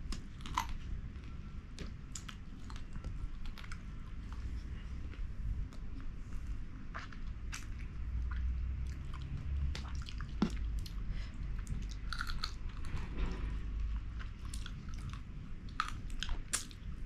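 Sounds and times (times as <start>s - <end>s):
chewing with wet mouth clicks: 0.1s - 4.4s, 6.8s - 12.9s, 14.2s - 16.9s.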